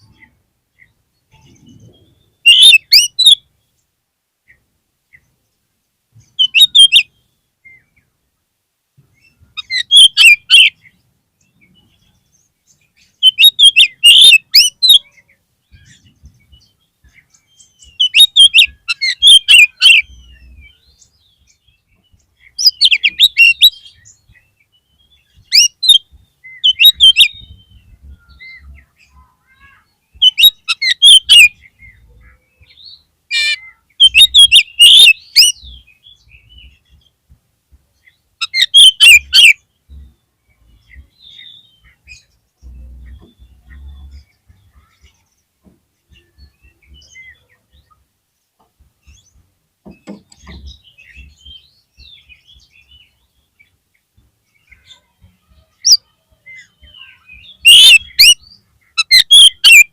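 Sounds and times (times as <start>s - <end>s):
bird singing whistled phrases: 2.4s - 3.4s, 6.4s - 7.1s, 9.6s - 10.8s, 13.2s - 15.1s, 17.8s - 20.6s, 25.5s - 28.8s, 29.6s - 31.7s, 32.7s - 36.3s, 38.4s - 39.6s, 55.6s - 59.9s.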